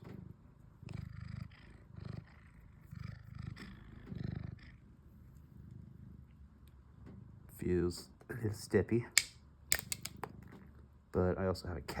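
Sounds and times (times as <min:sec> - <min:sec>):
cat purring: 0:00.0 - 0:06.6.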